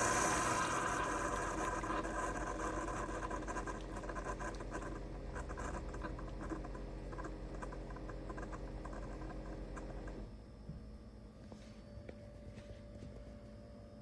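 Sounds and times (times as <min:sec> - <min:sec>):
coffee sputtering and dripping: 0:00.0 - 0:10.3
coffee maker pump humming: 0:00.0 - 0:14.0.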